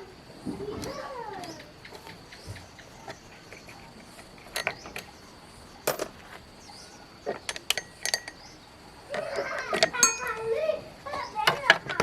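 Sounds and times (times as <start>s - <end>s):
metal tools clinking: 3.5s - 5.1s, 7.2s - 10.6s.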